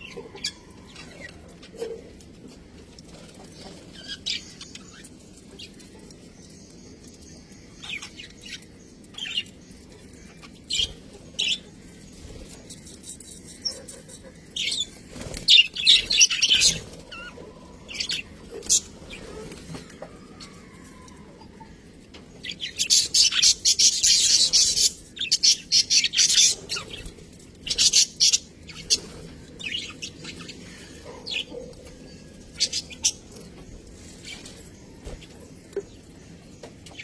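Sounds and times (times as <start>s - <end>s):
budgerigars chirping: 29.7s - 32.0s.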